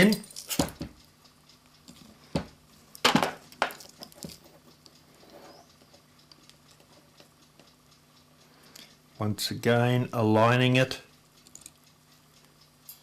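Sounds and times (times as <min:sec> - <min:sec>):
metallic clinks and taps: 0:00.0 - 0:01.0, 0:01.9 - 0:06.0, 0:11.4 - 0:11.8
faint clock ticks: 0:00.0 - 0:13.0.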